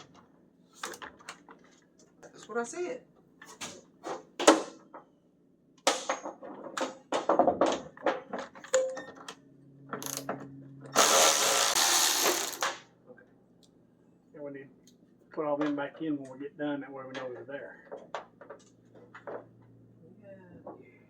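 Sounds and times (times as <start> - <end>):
handheld power tool running: 10.9 - 12.8.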